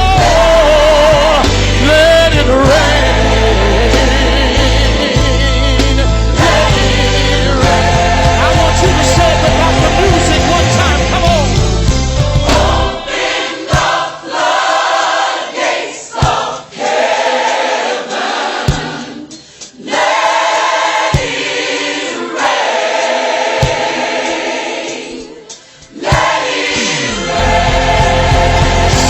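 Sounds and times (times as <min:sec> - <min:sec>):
band with heavy bass beat: 0:00.0 - 0:13.1, 0:26.2 - 0:29.0
gospel choir singing: 0:00.0 - 0:29.0.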